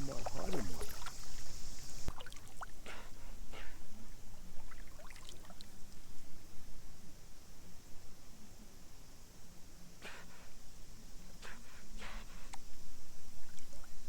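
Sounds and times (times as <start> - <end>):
water splashing and trickling: 0.0 - 2.9, 4.6 - 5.7.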